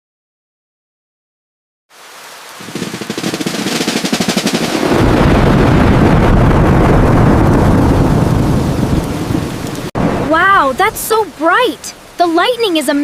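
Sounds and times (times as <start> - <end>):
deep thunder rumble: 2.6 - 12.2
thunder crackling rattle: 2.6 - 12.5.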